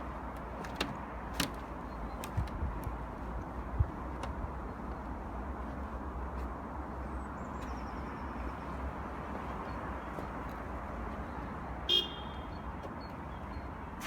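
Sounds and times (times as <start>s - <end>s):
distant road traffic rumble: 0.0s - 14.0s
car horn toot: 11.9s - 12.6s.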